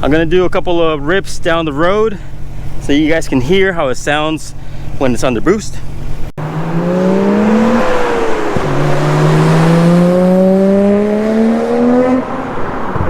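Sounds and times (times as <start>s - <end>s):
car engine accelerating hard: 6.4s - 13.0s.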